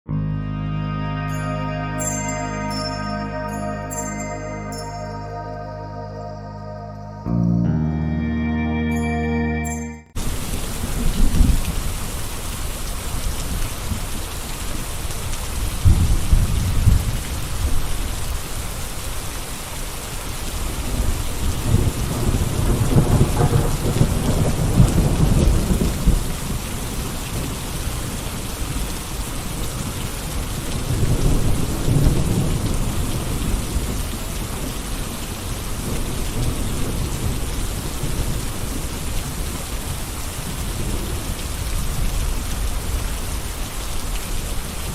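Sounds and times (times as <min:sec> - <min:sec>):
rain falling: 0:10.2 - 0:44.9.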